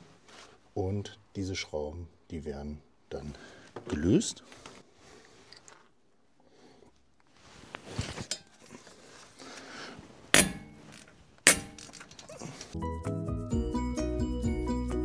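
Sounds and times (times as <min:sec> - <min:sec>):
sharp ringing metallic knocks: 0:10.4 - 0:12.0.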